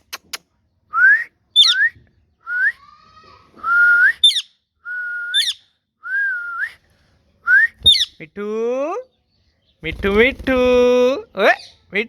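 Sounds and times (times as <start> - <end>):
parrot chirps: 4.2 - 4.6, 5.3 - 5.6, 7.9 - 8.2.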